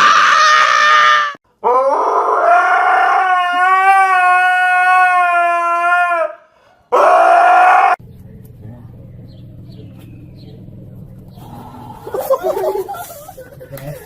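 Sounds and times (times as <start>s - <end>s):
dog howling: 0.0s - 8.0s.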